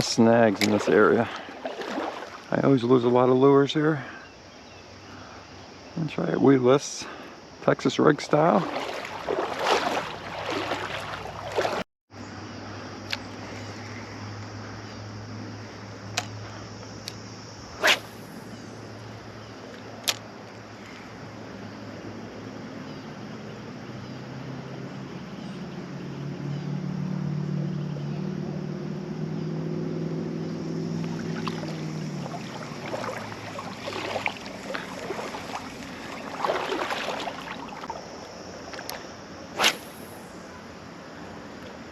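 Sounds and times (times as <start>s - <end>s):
creek rushing: 0.0s - 3.3s, 7.0s - 11.8s, 30.9s - 40.4s
low engine drone: 22.0s - 37.9s.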